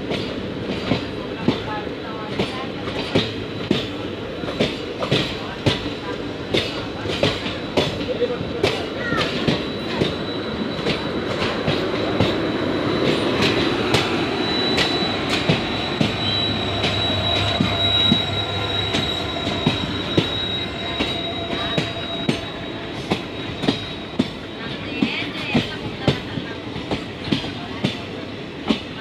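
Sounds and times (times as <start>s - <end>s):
train wheels rumbling on rails: 0.0s - 29.0s
high-pitched wheel squeal: 12.1s - 25.6s.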